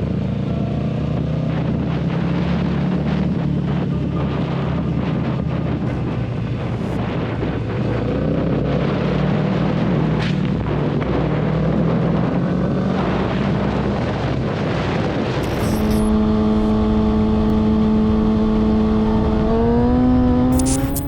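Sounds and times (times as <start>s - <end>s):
wind noise: 0.0s - 21.0s
motorcycle engine: 15.4s - 21.0s.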